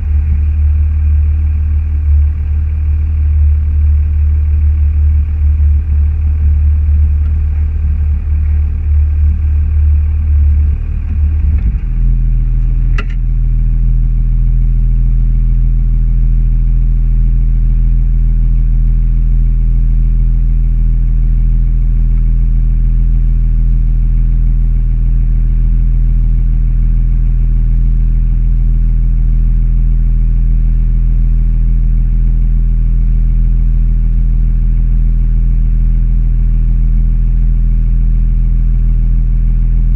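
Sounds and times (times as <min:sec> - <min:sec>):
car engine running: 0:00.0 - 0:39.9
sharp click: 0:12.8 - 0:13.3.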